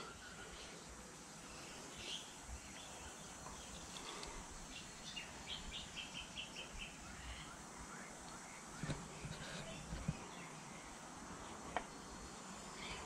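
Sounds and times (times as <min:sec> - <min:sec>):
faint birdsong: 0:00.0 - 0:13.0
low background noise: 0:00.0 - 0:13.0.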